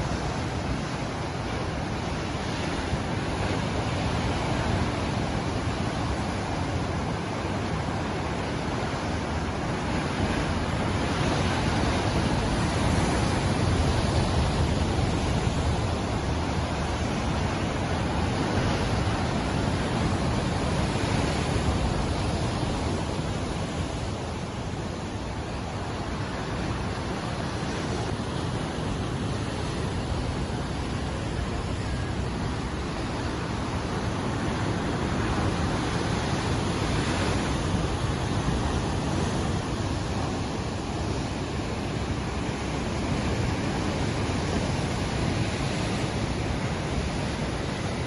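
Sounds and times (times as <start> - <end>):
ocean waves breaking: 0.0 - 48.0.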